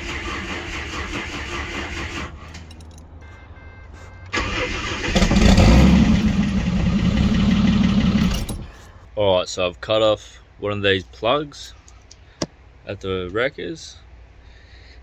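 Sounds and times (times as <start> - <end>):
car engine cranking on starter: 0.0 - 2.7, 4.3 - 8.7
car engine running loudly: 4.4 - 8.6.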